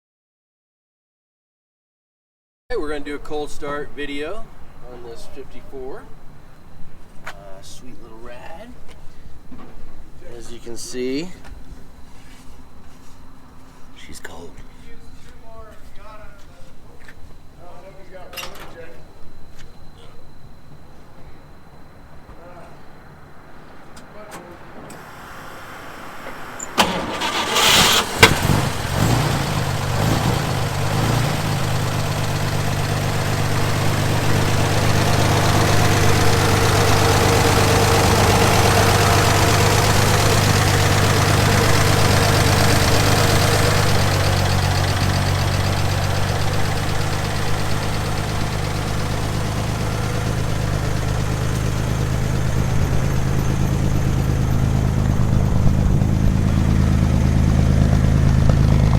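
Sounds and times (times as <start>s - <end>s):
truck engine cranking and idling: 2.8s - 58.9s.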